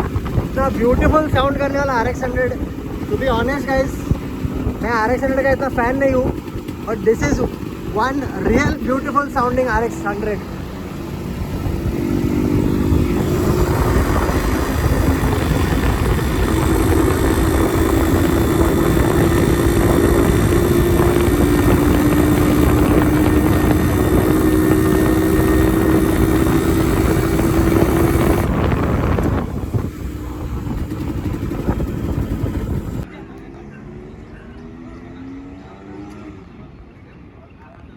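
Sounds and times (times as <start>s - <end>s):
two-stroke motorcycle engine running: 0.0s - 33.1s.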